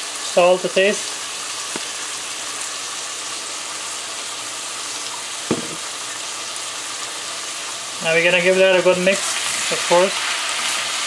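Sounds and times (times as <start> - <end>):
food sizzling in hot oil: 0.0 - 11.0
short knock: 5.5 - 5.8.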